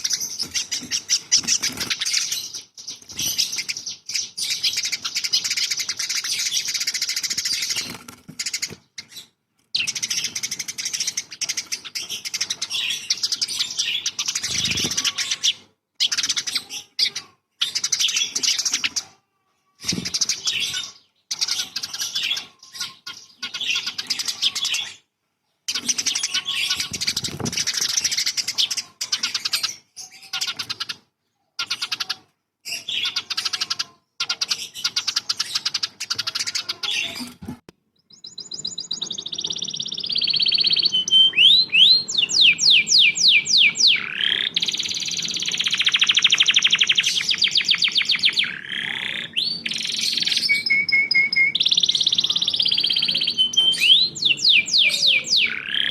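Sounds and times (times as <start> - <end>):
bird whistles and trills: 0.0 - 19.0, 38.0 - 55.9
songbird chattering: 0.0 - 19.2, 19.9 - 25.0, 31.6 - 37.3, 38.0 - 55.9.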